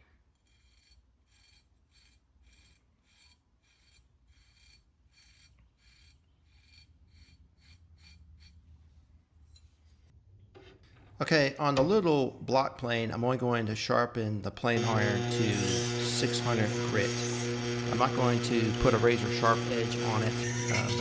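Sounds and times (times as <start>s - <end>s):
plane iron scraping on sharpening stone: 0.2s - 8.6s, 14.8s - 21.0s.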